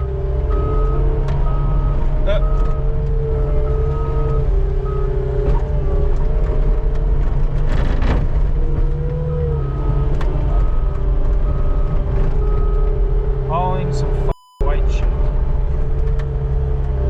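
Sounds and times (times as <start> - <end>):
skid steer engine running: 0.0 - 14.3.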